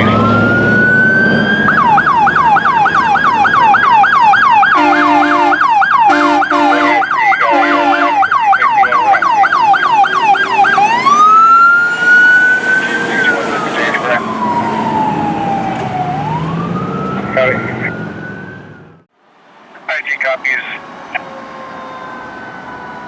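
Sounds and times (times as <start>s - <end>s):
electronic siren wailing and yelping: 0.0s - 19.0s
short horn blasts: 4.8s - 8.2s.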